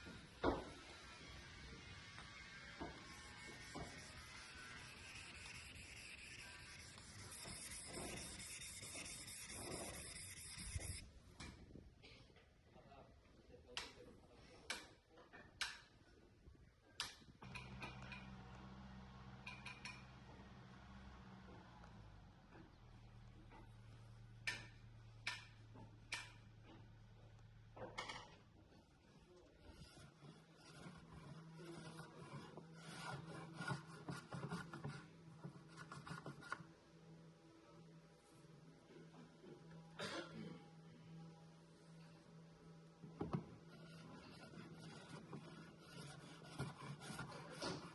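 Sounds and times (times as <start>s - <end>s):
wood rubbed by hand: 2.3s - 11.0s, 43.7s - 47.9s.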